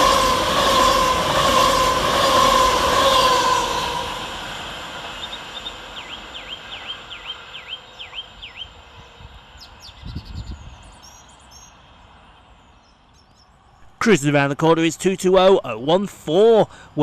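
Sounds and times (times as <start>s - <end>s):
electric train rumble: 0.0s - 17.0s
bird singing swooping notes: 5.0s - 14.0s
bird chirps: 5.2s - 14.0s.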